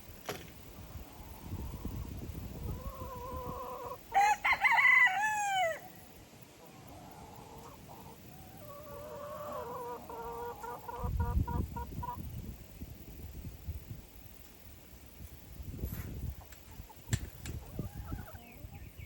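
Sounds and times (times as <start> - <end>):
chickens clucking: 0.8 - 5.0, 6.5 - 12.5, 15.8 - 19.0
rooster crowing: 3.4 - 6.0.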